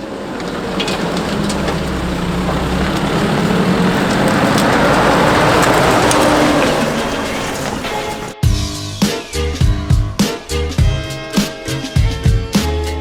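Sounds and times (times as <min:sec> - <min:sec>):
branches scraping vehicle bodywork: 0:00.0 - 0:08.4
engine hum: 0:00.0 - 0:08.4.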